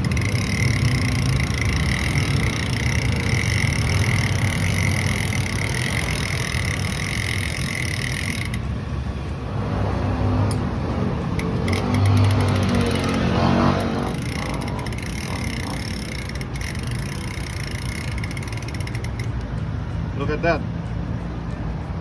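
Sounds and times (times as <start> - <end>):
bicycle drivetrain clicking: 0.0 - 8.8, 11.2 - 19.7.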